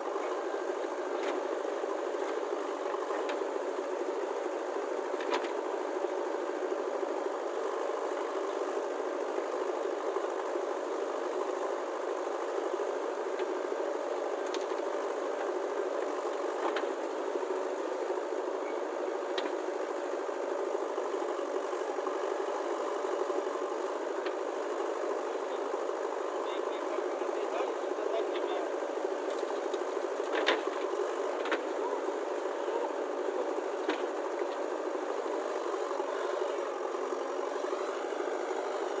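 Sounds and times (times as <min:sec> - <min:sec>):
faint clicks: 0:14.4 - 0:14.9.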